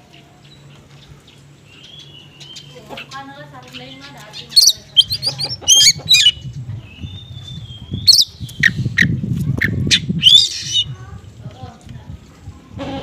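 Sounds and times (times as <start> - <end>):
small songbirds calling: 0.0 - 11.0
low background murmur: 0.0 - 13.0
bird squawk: 3.8 - 6.4, 8.1 - 11.0.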